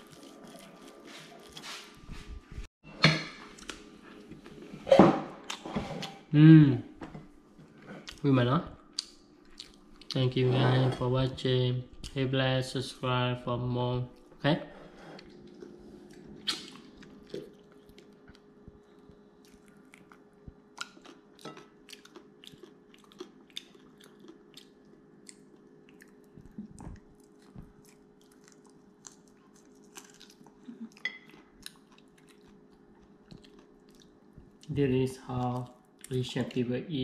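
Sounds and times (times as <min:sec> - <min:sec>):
faint steady hum: 0:03.3 - 0:37.0
chewing and crunching bones: 0:08.9 - 0:10.2, 0:15.2 - 0:34.7.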